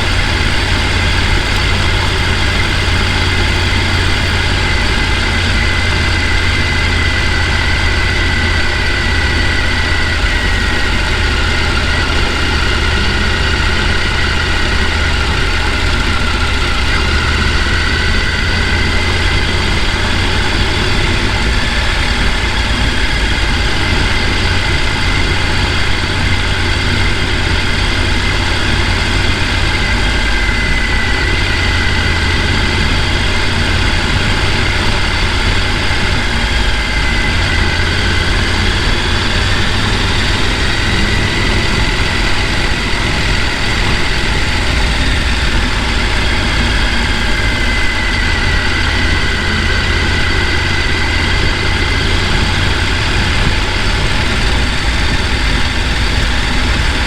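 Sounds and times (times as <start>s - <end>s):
mountain stream rushing: 0.0s - 20.9s.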